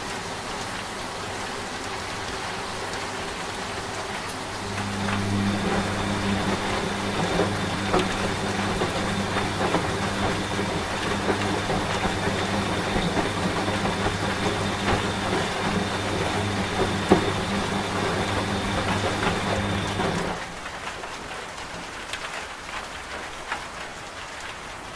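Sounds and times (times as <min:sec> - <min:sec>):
rain falling: 0:00.0 - 0:24.9
washing machine humming: 0:01.2 - 0:21.1.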